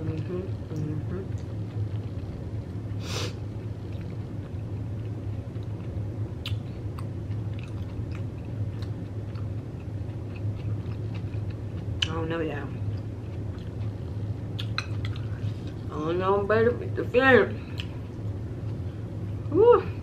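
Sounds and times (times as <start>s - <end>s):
steady low hum: 0.0s - 20.0s
chewing crunchy snack: 3.8s - 12.1s, 12.8s - 15.9s.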